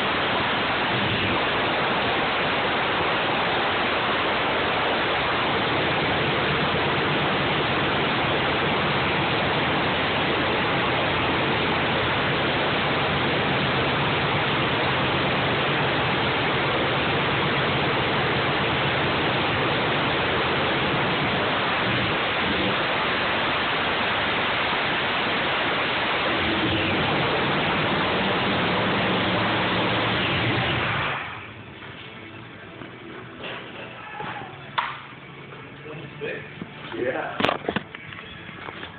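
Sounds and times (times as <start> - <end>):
engine running loudly: 0.0 - 31.5.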